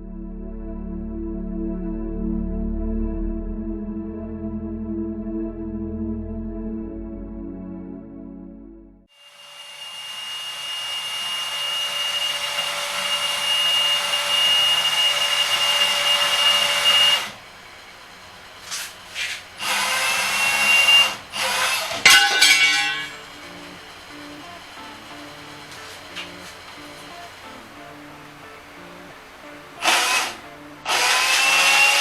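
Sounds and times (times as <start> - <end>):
power tool whining: 9.1 - 17.6, 18.2 - 32.0.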